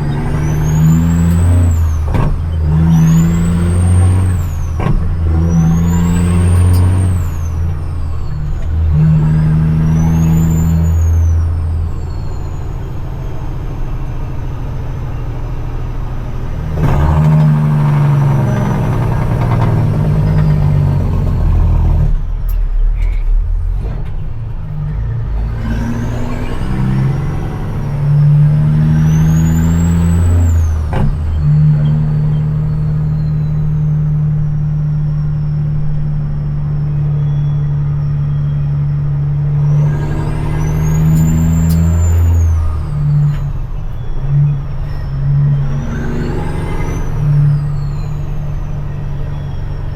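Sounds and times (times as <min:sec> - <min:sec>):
diesel truck engine under load: 0:00.0 - 0:49.9
turbo whistle: 0:36.8 - 0:49.9.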